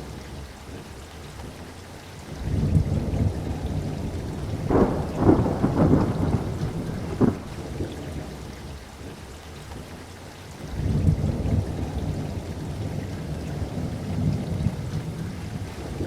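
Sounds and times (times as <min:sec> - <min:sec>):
steady rain: 0:00.0 - 0:16.0
rolling thunder: 0:02.4 - 0:08.3.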